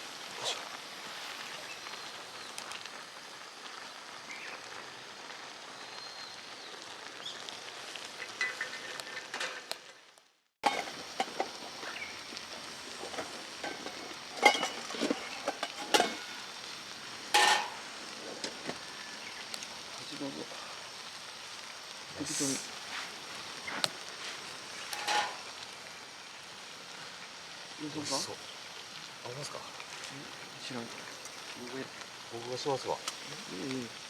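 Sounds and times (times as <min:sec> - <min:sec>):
food sizzling in a pan: 0:00.0 - 0:34.0
utensils knocking cookware: 0:13.1 - 0:16.3, 0:17.4 - 0:17.8, 0:25.0 - 0:25.4.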